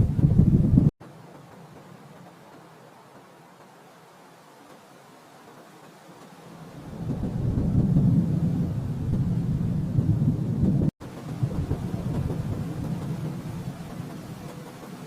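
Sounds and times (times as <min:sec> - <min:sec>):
thunder rumbling: 0:00.0 - 0:00.9, 0:06.5 - 0:15.0.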